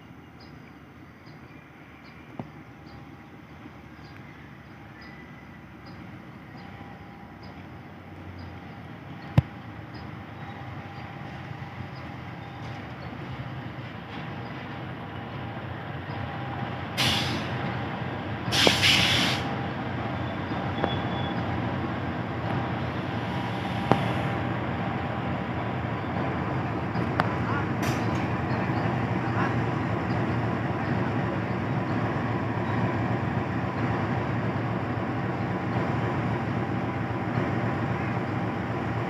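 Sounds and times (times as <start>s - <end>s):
train rumbling: 0.0s - 39.0s
loud hissing blasts: 17.0s - 17.7s, 18.5s - 19.6s.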